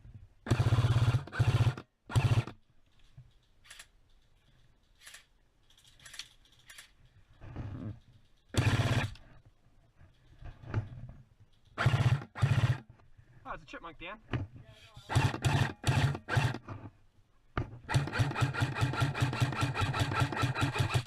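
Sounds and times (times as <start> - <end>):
airsoft gun firing bursts: 0.4 - 2.6, 8.5 - 9.2, 11.8 - 12.9, 15.1 - 16.6, 17.9 - 21.0.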